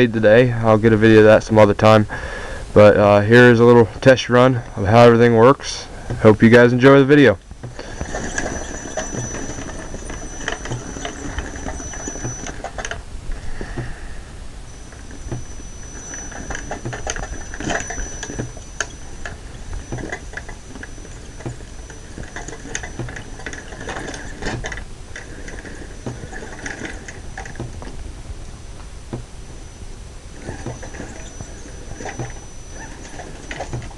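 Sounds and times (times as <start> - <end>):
thin high whine: 0.0 - 33.9
electric motor and gears whining: 2.7 - 33.9
clicks and rattles: 7.4 - 13.0, 14.7 - 28.0, 28.8 - 33.9.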